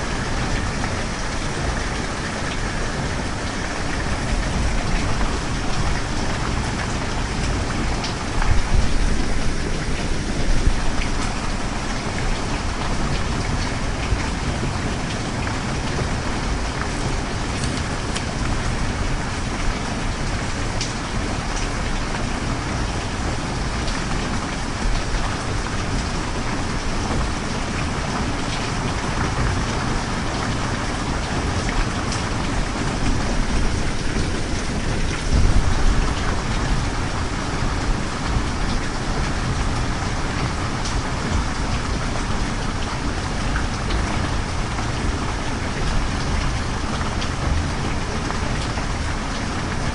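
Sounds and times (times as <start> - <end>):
heavy rain: 0.0 - 49.9.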